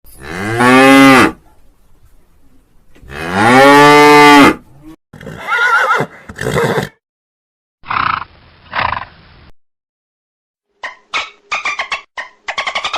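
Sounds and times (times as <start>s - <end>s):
cow mooing: 3.1s - 4.6s.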